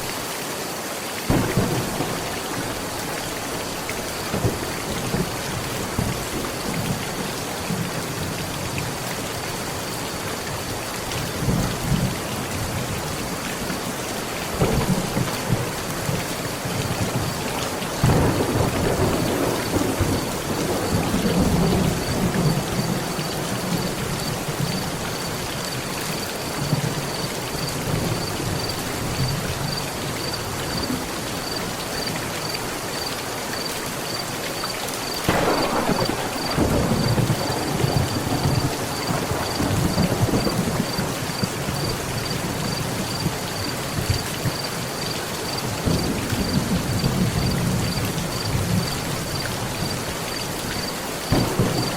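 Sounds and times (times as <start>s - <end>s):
heavy rain on metal roof: 0.0s - 51.9s
thunder clap: 1.3s - 7.0s, 14.6s - 24.8s, 35.2s - 42.1s, 51.3s - 51.9s
thunder rumbling: 1.3s - 8.8s, 14.5s - 29.8s, 35.3s - 44.6s, 51.3s - 51.9s.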